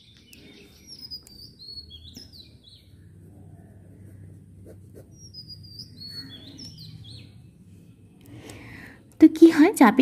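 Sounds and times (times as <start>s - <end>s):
small birds chirping: 0.0s - 7.6s
faint low hum: 0.0s - 10.0s
pen scratching on paper: 3.5s - 5.5s.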